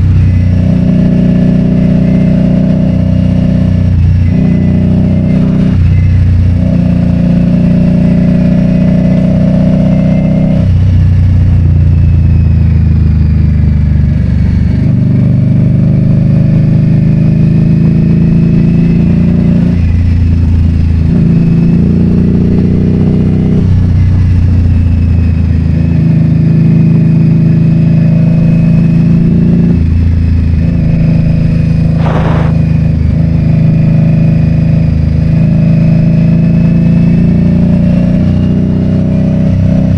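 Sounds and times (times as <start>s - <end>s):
motorcycle engine running: 0.0s - 39.9s
brief sharp sound: 32.0s - 32.8s.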